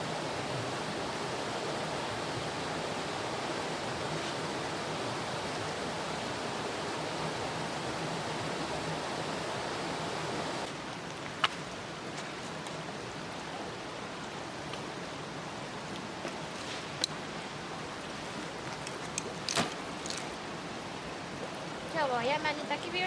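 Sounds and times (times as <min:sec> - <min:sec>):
steady rushing noise: 0:00.0 - 0:10.8.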